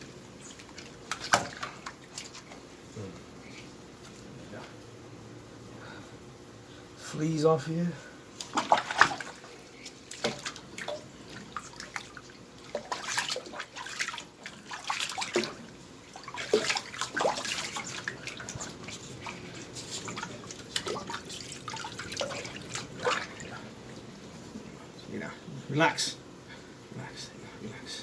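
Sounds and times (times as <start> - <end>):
water splashing and dripping: 10.1 - 23.6.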